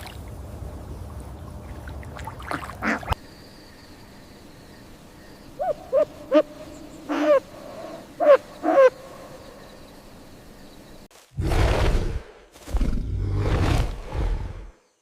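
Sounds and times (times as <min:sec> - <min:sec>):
owl hooting: 0:05.6 - 0:09.1.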